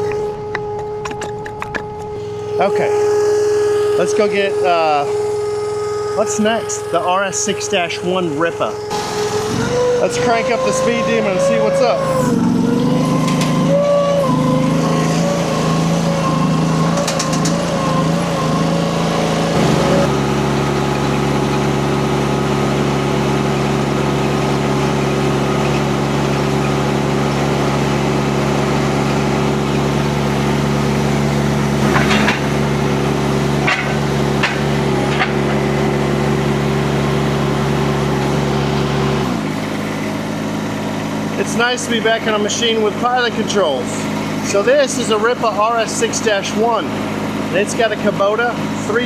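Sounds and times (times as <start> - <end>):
metal clanks: 0.0 - 2.2, 16.9 - 17.8, 31.8 - 35.8
diesel engine running: 0.0 - 49.0.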